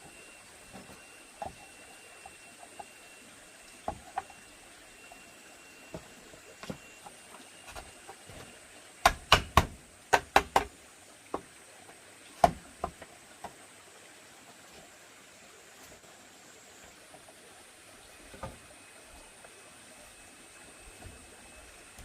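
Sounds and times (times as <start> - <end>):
faint high insect-like tone: 0.0 - 22.0
knocks on bamboo: 9.0 - 10.7, 12.4 - 13.0.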